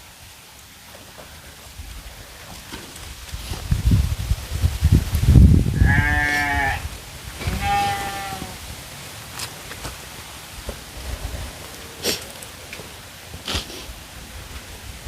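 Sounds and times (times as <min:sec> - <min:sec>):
animal bleating: 0:05.8 - 0:08.6.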